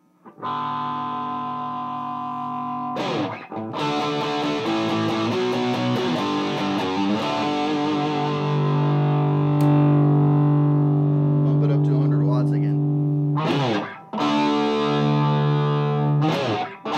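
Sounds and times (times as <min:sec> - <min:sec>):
distorted electric guitar: 0:00.0 - 0:16.9.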